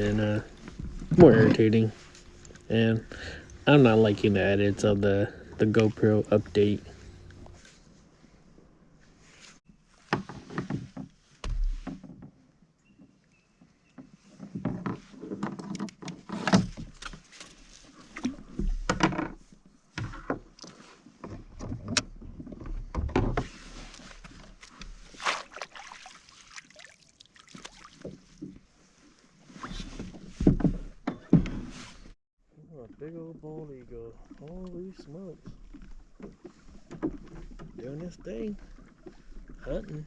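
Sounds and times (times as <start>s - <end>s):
water splashes: 0.0s - 7.6s, 23.8s - 28.6s.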